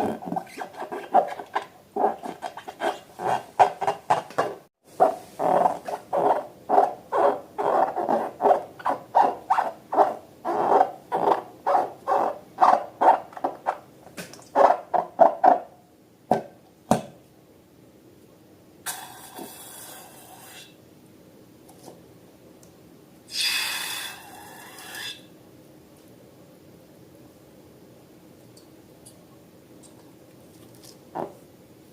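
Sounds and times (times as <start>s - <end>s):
squeaky squelches of balloons and slime: 0.0s - 15.7s.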